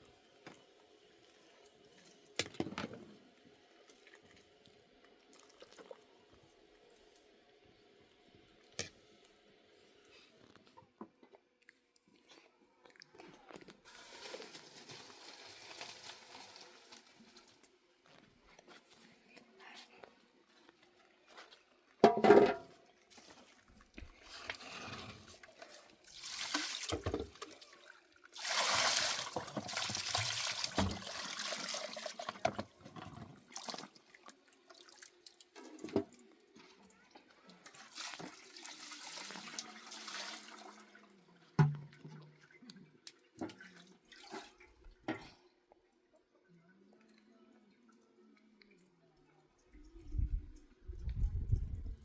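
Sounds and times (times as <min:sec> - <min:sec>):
water pouring and splashing: 0:13.9 - 0:17.7, 0:24.2 - 0:36.0, 0:37.6 - 0:41.0, 0:42.0 - 0:44.6.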